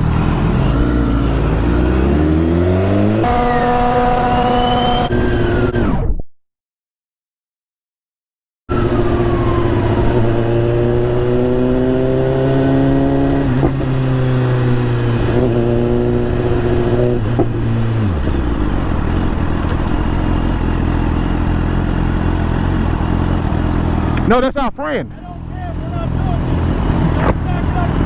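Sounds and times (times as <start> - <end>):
motorcycle engine running: 3.2 - 5.1, 15.3 - 24.2.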